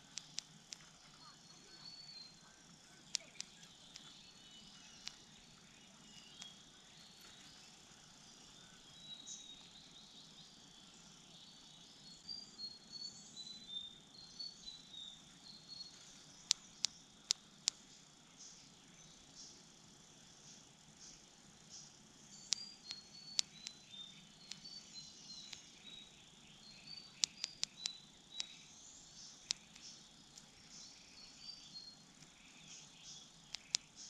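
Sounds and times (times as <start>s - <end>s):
sharp clicks: 0.0s - 1.1s, 3.0s - 5.4s, 16.4s - 17.9s, 22.4s - 26.0s, 26.6s - 28.7s, 29.3s - 30.8s, 33.4s - 34.0s
faint insect hum: 0.0s - 34.0s
small birds chirping: 0.0s - 34.0s.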